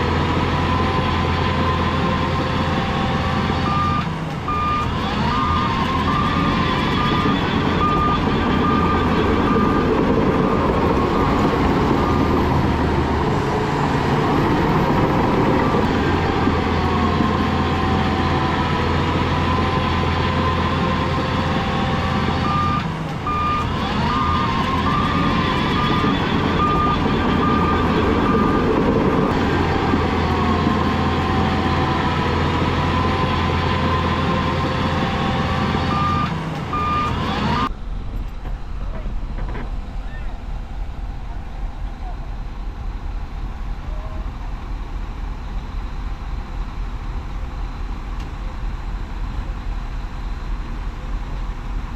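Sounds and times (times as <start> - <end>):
diesel engine drone: 0.0 - 51.9
machinery whine: 0.0 - 51.9
reversing alarm beeping: 0.3 - 37.7.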